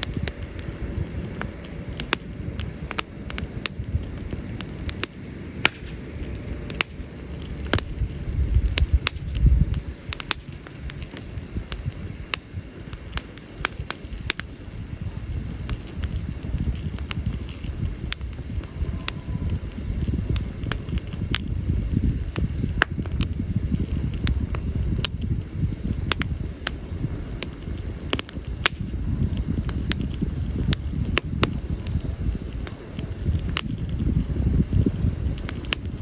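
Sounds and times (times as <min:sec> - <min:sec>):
campfire crackling and popping: 0:00.0 - 0:36.0.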